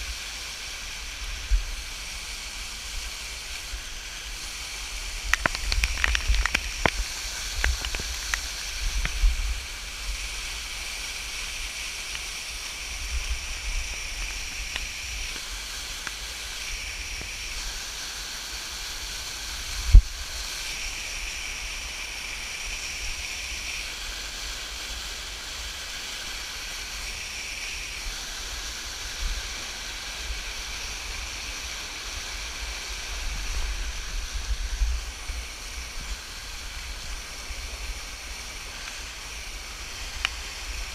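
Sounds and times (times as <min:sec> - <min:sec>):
waterfall rushing: 0:00.0 - 0:40.9
sharp clicks and knocks: 0:05.2 - 0:09.2.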